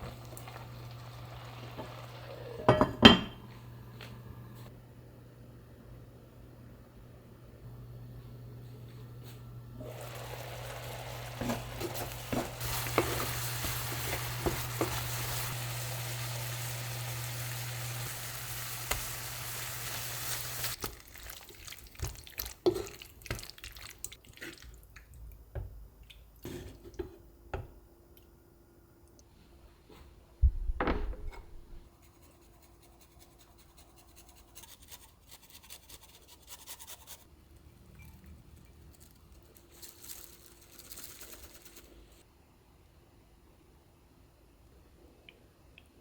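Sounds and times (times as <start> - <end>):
food sizzling in frying pan: 0.0 - 2.7, 9.8 - 23.4.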